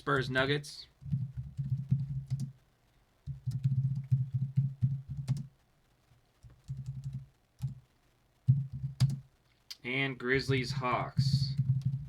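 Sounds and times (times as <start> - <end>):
fast typing on computer keyboard: 1.0 - 2.6, 3.3 - 5.5, 6.4 - 7.8, 8.5 - 9.2, 11.2 - 12.0.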